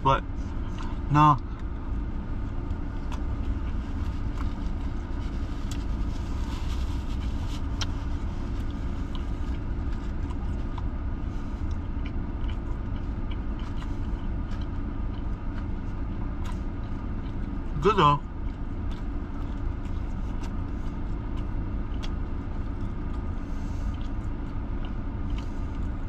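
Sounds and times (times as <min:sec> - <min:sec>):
car engine idling: 0:00.0 - 0:26.0
chewing clicks: 0:08.6 - 0:11.0, 0:11.6 - 0:17.7, 0:18.4 - 0:23.3, 0:23.9 - 0:26.0.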